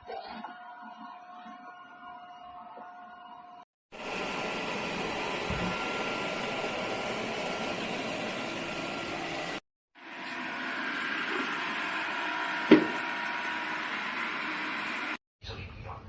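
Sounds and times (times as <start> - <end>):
robot vacuum whirring: 4.0 - 9.6.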